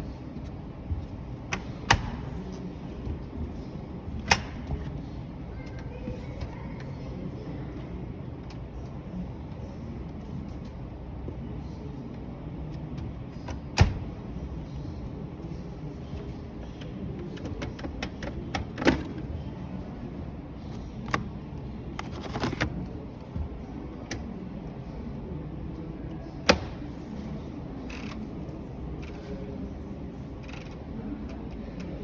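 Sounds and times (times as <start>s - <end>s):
steady background noise: 0.0s - 32.0s
washing machine door clicks: 1.5s - 2.3s, 4.2s - 4.7s, 13.5s - 14.1s, 26.4s - 26.8s.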